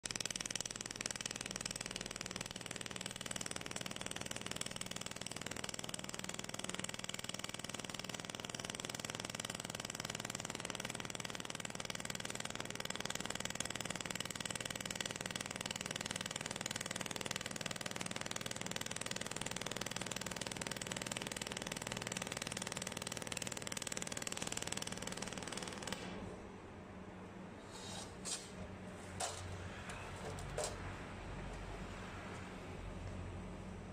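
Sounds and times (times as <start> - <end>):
faint machine hum: 23.3 - 33.9.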